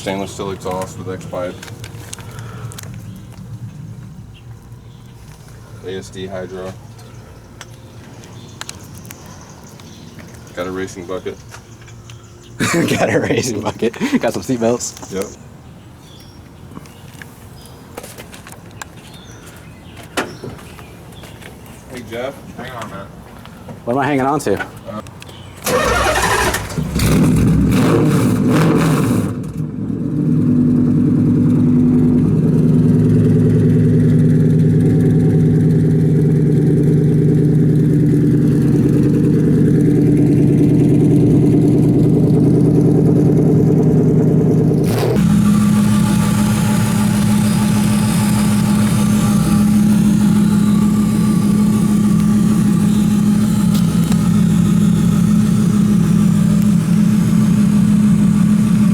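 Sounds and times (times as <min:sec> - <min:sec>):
engine idling: 0:25.6 - 0:27.9, 0:30.0 - 0:58.9
engine cranking and catching: 0:25.6 - 0:29.7, 0:32.2 - 0:58.9.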